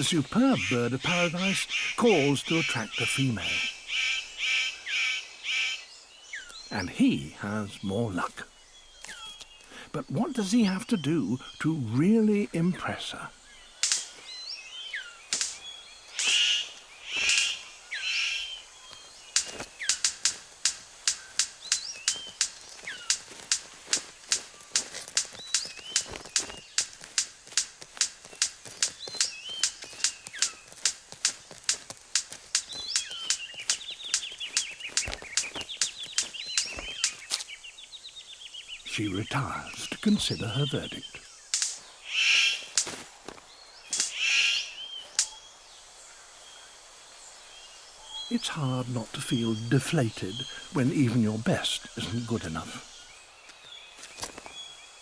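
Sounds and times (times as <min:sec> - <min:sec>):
harsh buzzy bird calls: 0:00.0 - 0:55.0
rapid sharp bird clicks: 0:13.7 - 0:37.6, 0:41.2 - 0:45.4.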